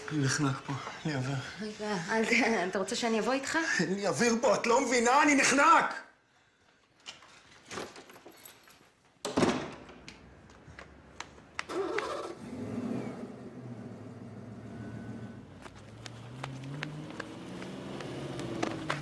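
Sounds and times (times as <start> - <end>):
footsteps: 15.5 - 19.0.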